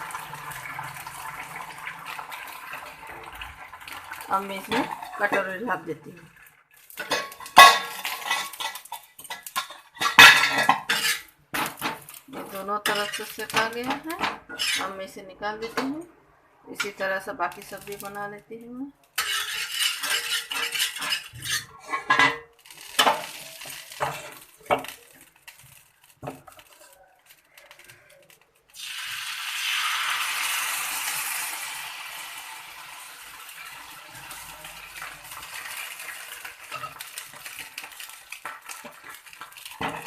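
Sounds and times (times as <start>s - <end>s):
batter sizzling on hot pan: 0.0s - 14.9s, 19.1s - 40.0s
metal utensils clinking on griddle: 6.8s - 15.0s, 19.2s - 28.4s, 33.5s - 40.0s.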